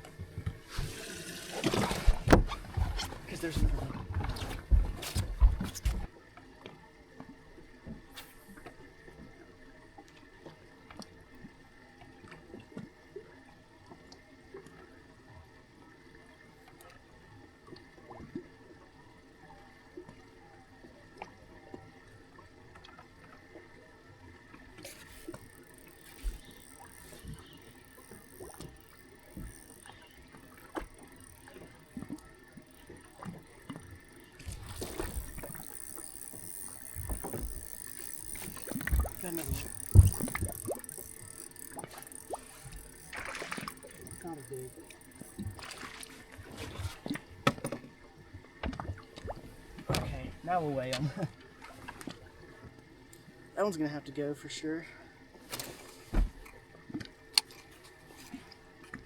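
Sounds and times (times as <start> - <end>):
water lapping against boat hull: 0.0 - 59.0
faint steady hum: 13.2 - 59.0
small knocks: 24.9 - 46.1.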